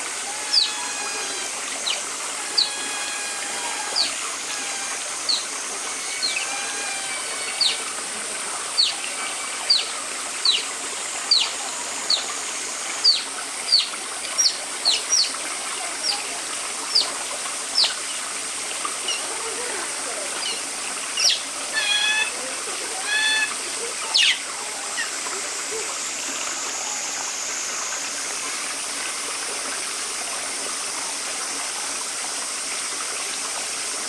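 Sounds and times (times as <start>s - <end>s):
running water: 0.0s - 34.0s
otters chirping: 0.3s - 8.0s, 8.7s - 10.7s, 11.3s - 12.4s, 17.8s - 18.1s, 20.4s - 22.4s, 23.0s - 25.1s.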